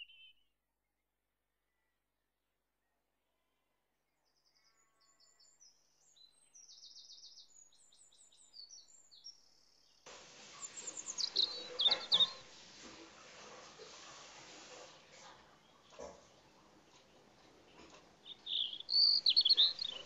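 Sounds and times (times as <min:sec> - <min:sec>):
small birds chirping: 0:00.0 - 0:00.3, 0:04.4 - 0:12.7, 0:14.8 - 0:20.0.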